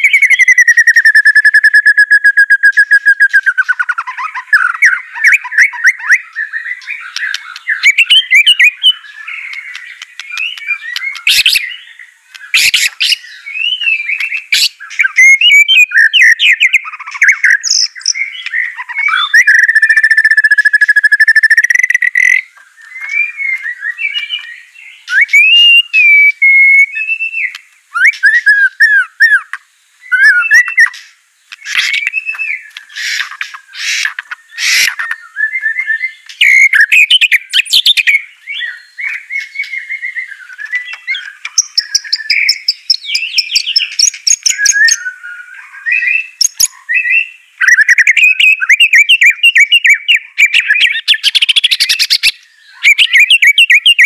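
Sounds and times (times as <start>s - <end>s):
bird singing whistled phrases: 0.0s - 54.0s.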